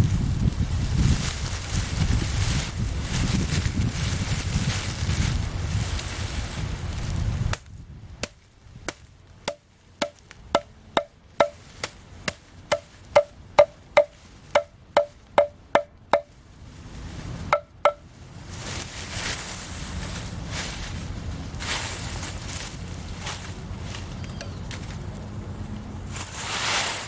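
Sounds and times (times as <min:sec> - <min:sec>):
rustling: 0:00.0 - 0:27.0
wind: 0:00.0 - 0:27.0
sharp knocks on wood: 0:09.5 - 0:11.6, 0:12.3 - 0:16.3, 0:17.6 - 0:18.0.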